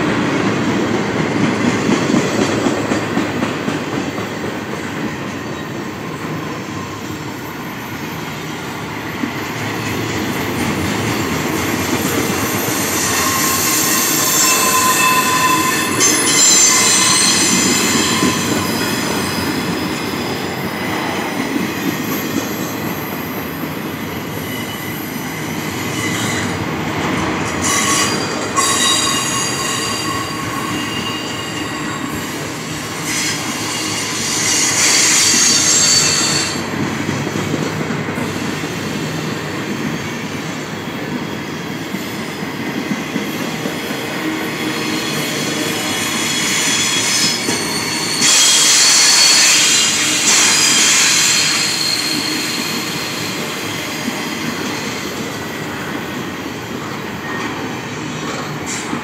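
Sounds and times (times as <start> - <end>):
freight train wheels rumbling: 0.0 - 59.0
high wheel squeal: 11.2 - 26.6, 27.6 - 36.7, 44.3 - 55.4.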